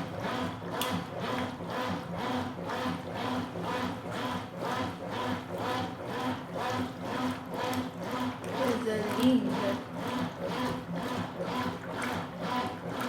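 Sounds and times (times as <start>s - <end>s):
washing machine agitating: 0.0s - 13.0s.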